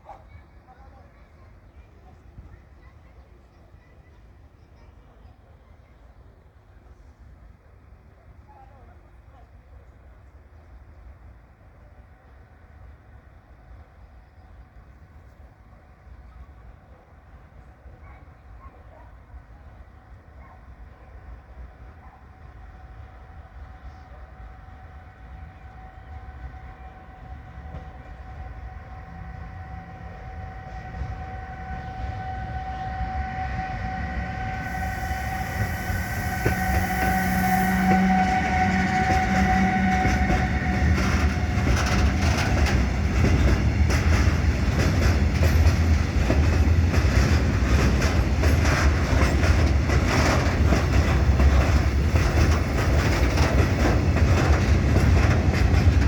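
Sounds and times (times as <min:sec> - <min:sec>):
train whine: 0:20.8 - 0:56.0
train wheels clattering over rail joints: 0:34.6 - 0:56.0.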